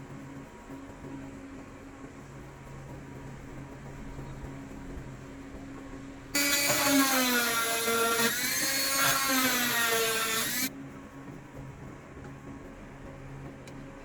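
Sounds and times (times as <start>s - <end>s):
power tool motor whining: 6.4s - 10.7s.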